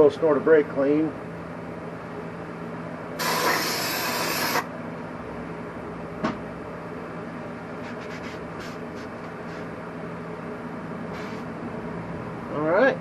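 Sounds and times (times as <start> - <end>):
aerosol can spraying hiss: 3.2 - 4.6.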